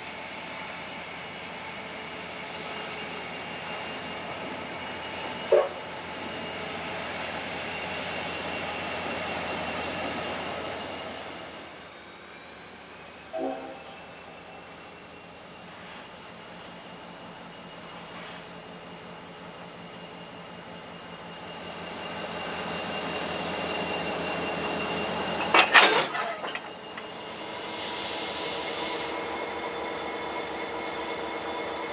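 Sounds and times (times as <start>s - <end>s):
train running past: 0.1s - 31.9s
train wheels rumbling: 21.7s - 31.0s
faint high ringing tones: 22.8s - 27.4s
loud metallic clanks: 25.1s - 27.2s.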